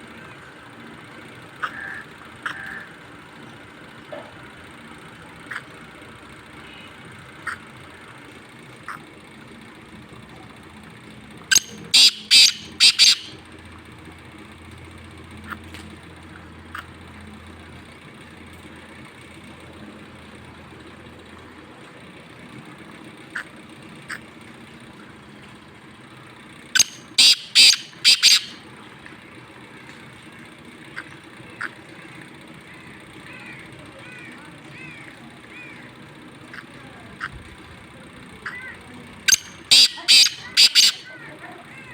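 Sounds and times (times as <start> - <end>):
faint steady hum: 0.0 - 41.9
bird call with grating notes: 11.5 - 13.4, 26.8 - 28.6, 39.3 - 41.2.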